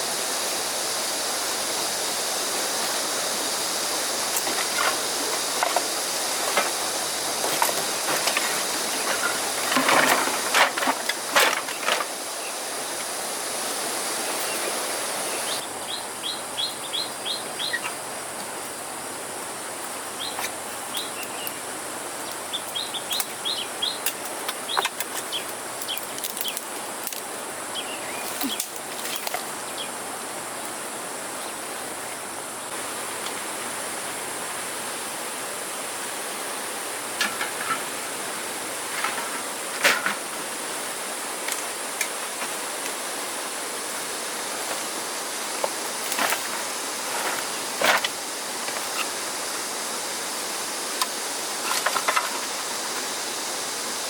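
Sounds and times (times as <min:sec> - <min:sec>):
steady hiss: 0:00.0 - 0:54.0
birds chirping: 0:14.2 - 0:18.1, 0:20.0 - 0:26.8, 0:27.6 - 0:30.0.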